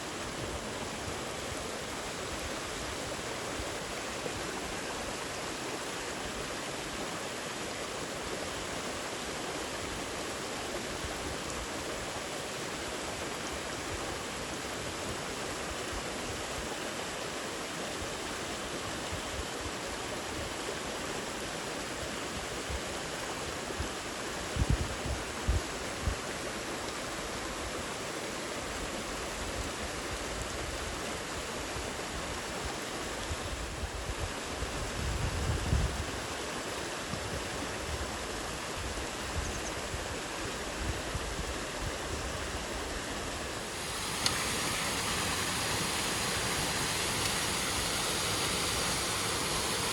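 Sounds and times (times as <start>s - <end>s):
heavy rain: 42.7s - 49.9s.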